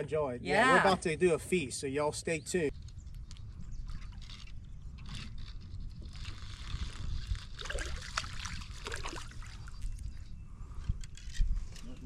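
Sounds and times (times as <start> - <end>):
water splashing and sloshing: 7.5 - 10.0.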